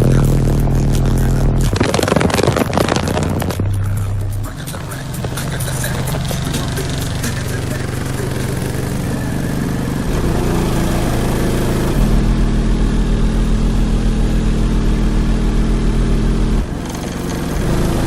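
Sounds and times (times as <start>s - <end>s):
subwoofers playing deep bass notes: 0.0s - 16.8s.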